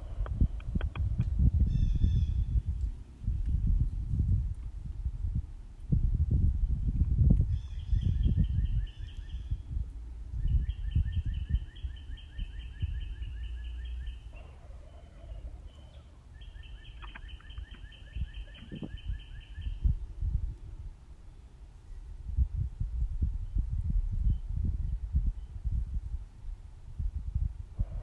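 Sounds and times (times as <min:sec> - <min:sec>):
songbird trilling: 0:10.4 - 0:19.9.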